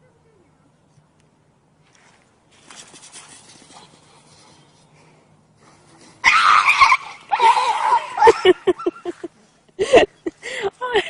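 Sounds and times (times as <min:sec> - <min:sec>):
animal crying and yelping: 0:06.0 - 0:09.2.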